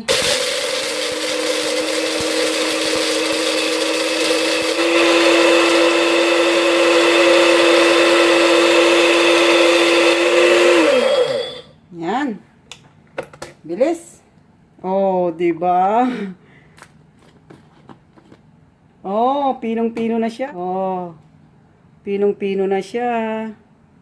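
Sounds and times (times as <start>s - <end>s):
blender grinding peppercorns: 0.0s - 11.7s.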